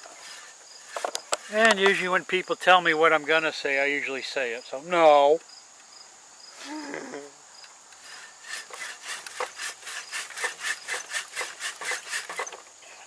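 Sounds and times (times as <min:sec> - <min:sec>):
hand saw cutting wood: 0:00.0 - 0:01.8, 0:08.0 - 0:12.6.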